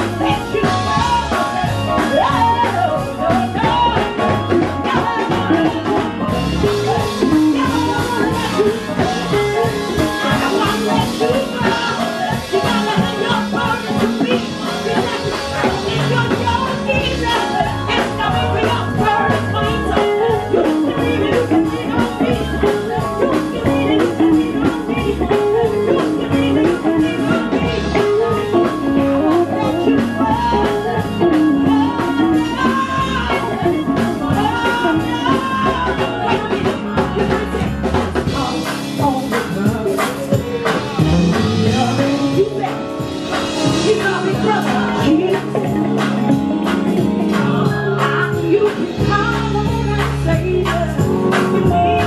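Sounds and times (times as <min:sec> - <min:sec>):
bass guitar: 0:00.0 - 0:52.0
melodic lead line: 0:00.0 - 0:52.0
steady beat: 0:36.9 - 0:52.0.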